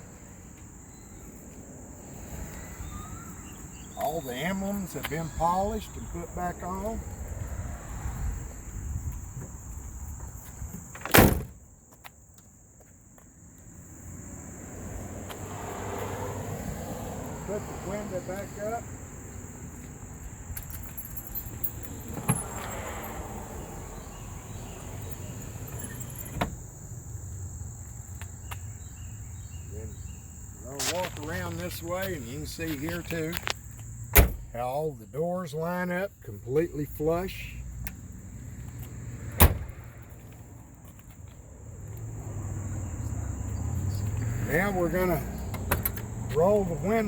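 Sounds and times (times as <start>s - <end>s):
car door shutting: 10.9s - 11.6s, 22.1s - 22.8s, 25.6s - 26.7s, 34.1s - 34.6s, 39.3s - 39.8s, 45.5s - 46.1s.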